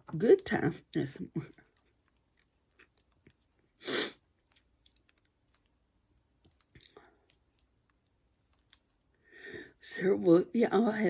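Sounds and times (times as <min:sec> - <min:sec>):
faint small clicks and taps: 0:01.4 - 0:03.6, 0:04.4 - 0:05.8, 0:06.4 - 0:09.2.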